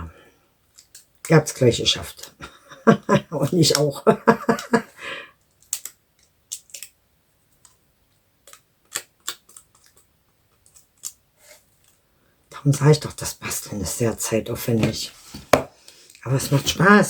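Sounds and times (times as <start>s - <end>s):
paper materials clicking and tapping: 5.6s - 7.0s.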